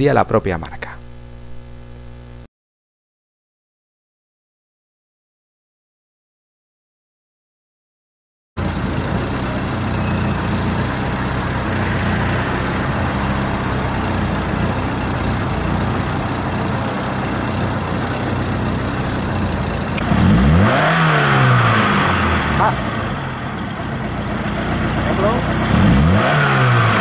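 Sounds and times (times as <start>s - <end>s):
car engine idling and revving: 8.6s - 27.0s.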